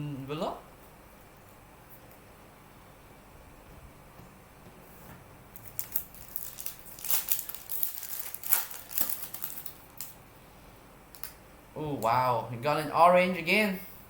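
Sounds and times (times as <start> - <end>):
plastic wrapper crinkling: 5.5 - 10.2.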